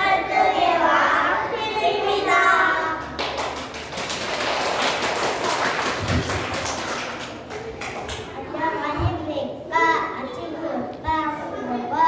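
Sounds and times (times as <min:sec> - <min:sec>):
hands clapping: 0:03.0 - 0:08.3.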